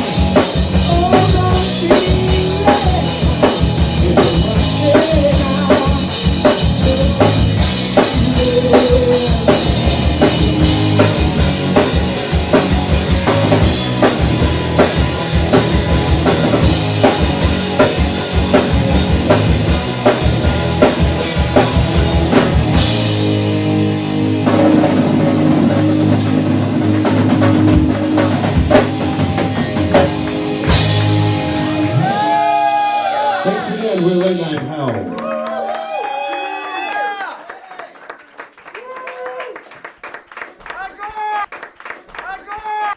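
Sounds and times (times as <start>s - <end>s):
drum kit beat: 0.0s - 32.9s
electric guitar: 0.0s - 35.3s.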